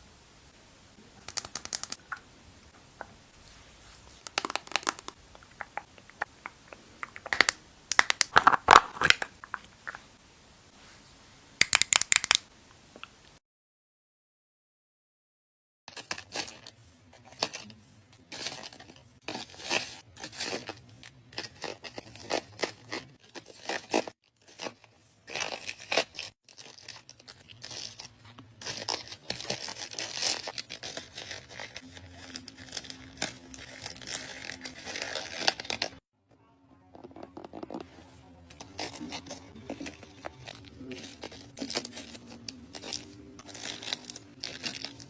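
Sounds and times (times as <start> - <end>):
makeup products clicking and crinkling: 1.2 - 2.1, 4.2 - 10.0.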